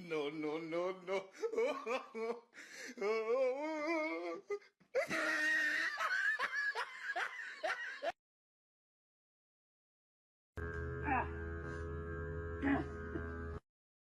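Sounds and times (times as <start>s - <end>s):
people laughing: 1.4s - 2.4s, 5.0s - 8.2s.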